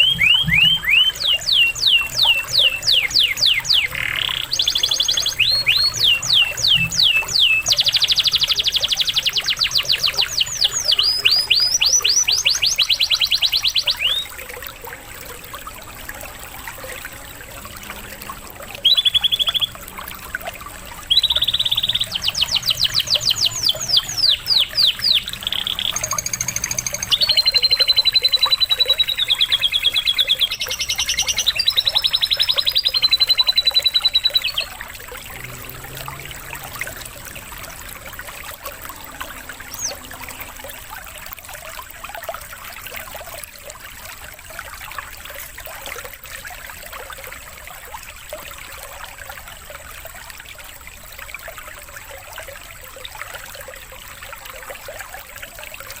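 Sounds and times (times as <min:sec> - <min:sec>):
canary singing trills: 0:00.0 - 0:14.4, 0:18.7 - 0:20.0, 0:20.9 - 0:41.2
running water: 0:00.0 - 0:56.0.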